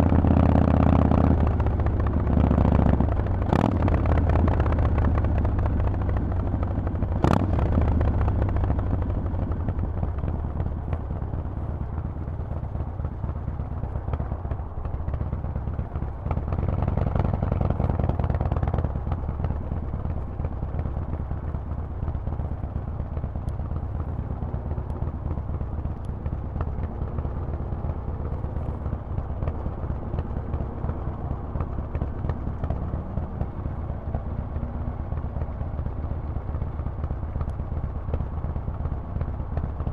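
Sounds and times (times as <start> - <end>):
motorcycle engine revving: 0.0 - 6.3, 7.0 - 22.1.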